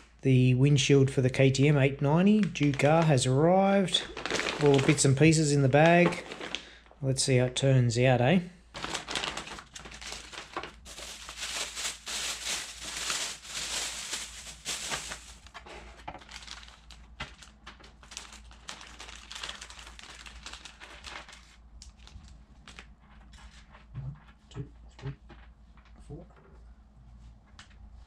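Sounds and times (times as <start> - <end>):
plastic packaging crinkling: 2.2 - 6.9, 8.7 - 23.8.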